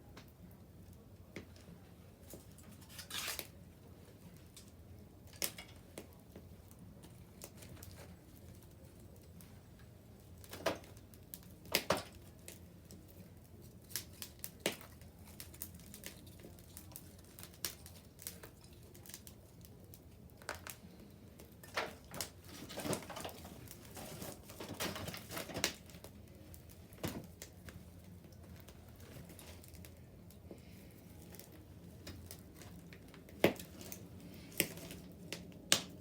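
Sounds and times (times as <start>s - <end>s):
bonfire crackling and popping: 0.0s - 36.0s.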